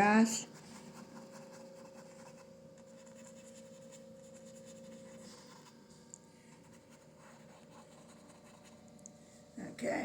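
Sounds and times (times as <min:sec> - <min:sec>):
steady hum: 0:00.0 - 0:10.0
paintbrush scratching on canvas: 0:00.5 - 0:05.8, 0:06.6 - 0:08.8.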